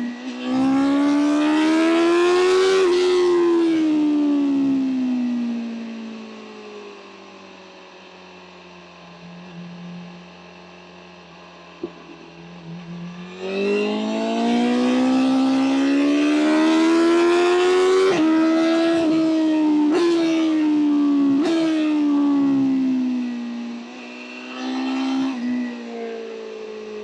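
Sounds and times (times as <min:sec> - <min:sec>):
motorcycle engine revving: 0:00.0 - 0:03.9, 0:11.8 - 0:26.4.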